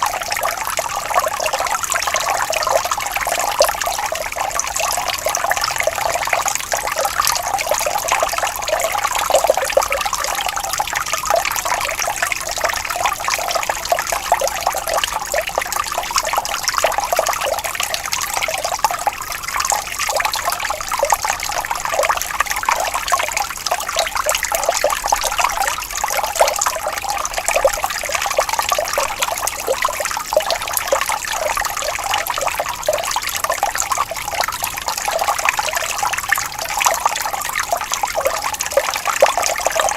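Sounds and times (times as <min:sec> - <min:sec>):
water trickling and babbling: 0:00.0 - 0:39.9.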